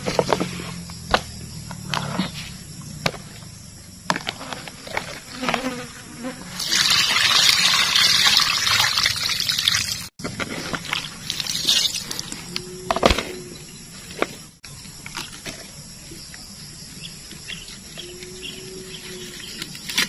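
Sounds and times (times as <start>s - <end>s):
water pouring: 6.5s - 10.1s, 10.8s - 12.2s.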